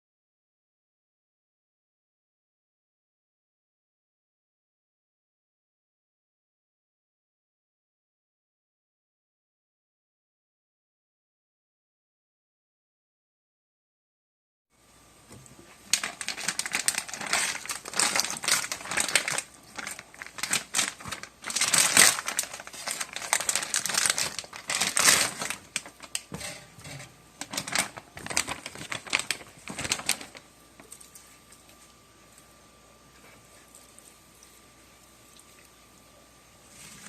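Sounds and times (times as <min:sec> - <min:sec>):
plastic wrapping crinkling: 0:15.4 - 0:32.0.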